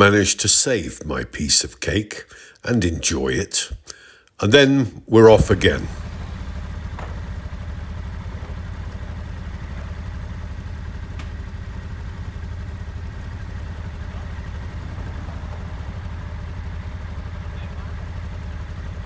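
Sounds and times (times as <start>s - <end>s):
motorcycle engine running: 5.3s - 19.0s.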